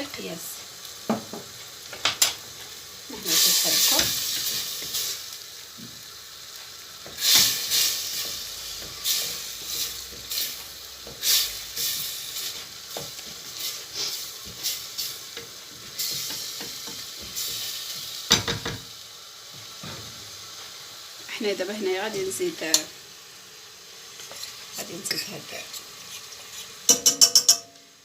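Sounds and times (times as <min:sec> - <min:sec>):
roux sizzling in a pan: 0:00.0 - 0:28.0
utensil scraping a pan: 0:24.2 - 0:27.6.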